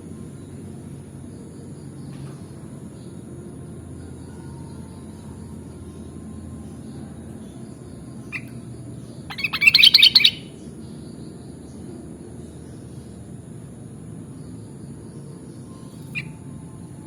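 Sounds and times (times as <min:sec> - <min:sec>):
bulbul chirping: 0:09.3 - 0:10.5.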